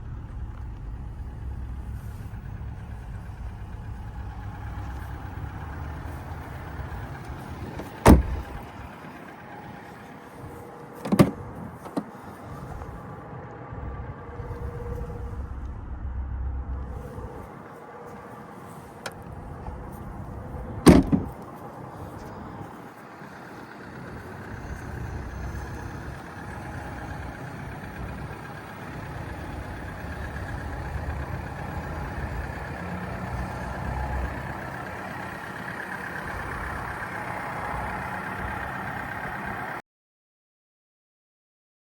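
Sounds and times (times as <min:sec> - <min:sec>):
low vehicle rumble: 0:00.0 - 0:39.8
car door shutting: 0:05.9 - 0:08.8, 0:10.9 - 0:12.9, 0:19.0 - 0:21.4.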